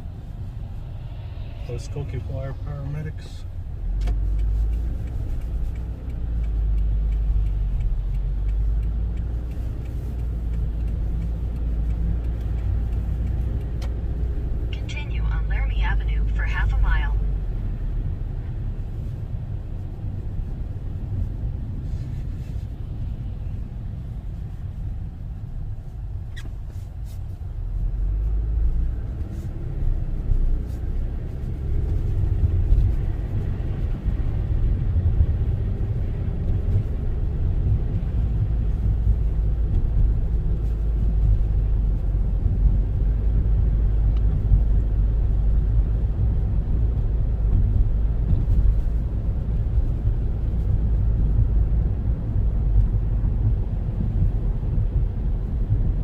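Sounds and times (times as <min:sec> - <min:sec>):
car engine and road rumble: 0:00.0 - 0:56.0
faint clicks: 0:04.0 - 0:14.3.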